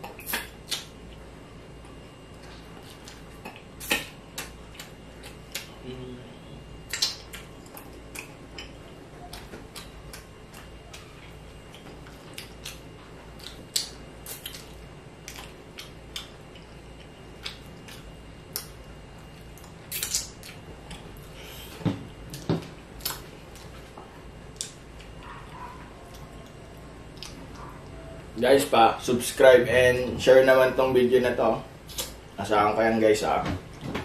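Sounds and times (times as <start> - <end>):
chewing and mouth smacks: 0.0 - 1.0, 2.4 - 5.8, 6.8 - 21.3, 22.3 - 27.9, 31.9 - 32.2
low steady hum: 0.0 - 34.0.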